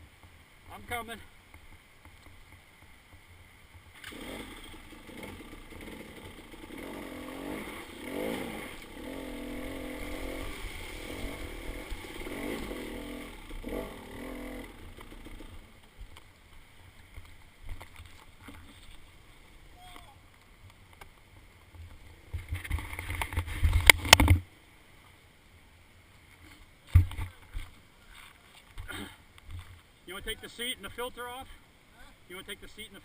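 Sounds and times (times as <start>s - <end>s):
dirt bike engine revving: 4.0s - 15.8s.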